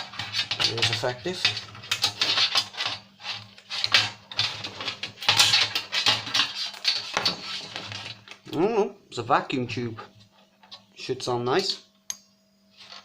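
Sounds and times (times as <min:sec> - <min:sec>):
plastic and metal parts clattering: 0:00.0 - 0:08.4.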